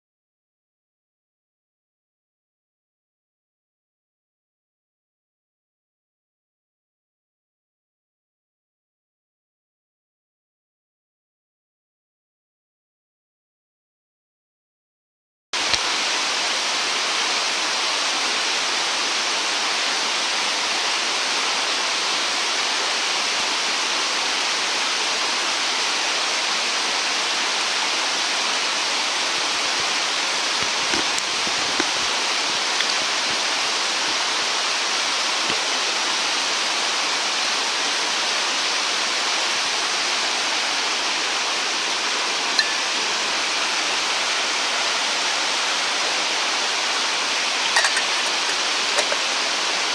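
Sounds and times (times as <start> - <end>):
flowing water rushing: 15.6 - 49.9.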